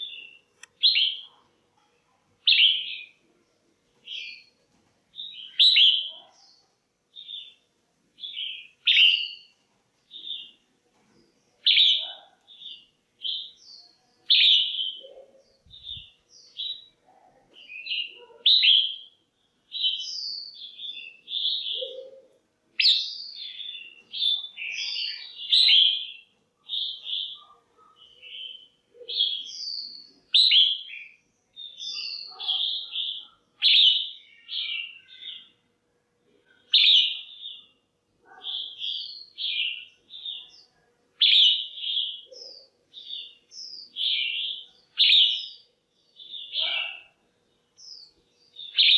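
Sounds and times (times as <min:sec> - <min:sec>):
bird calling chirpy phrases: 0:00.0 - 0:01.4, 0:02.4 - 0:03.2, 0:05.2 - 0:06.6, 0:08.2 - 0:09.5, 0:11.6 - 0:35.6, 0:36.5 - 0:37.7, 0:38.3 - 0:45.6, 0:46.2 - 0:47.2, 0:47.9 - 0:48.9.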